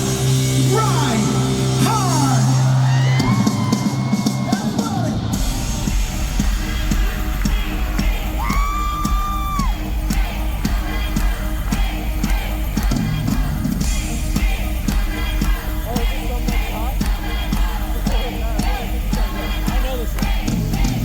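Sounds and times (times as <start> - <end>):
drum beat: 0.0 - 21.0
heavy bass: 0.0 - 21.0.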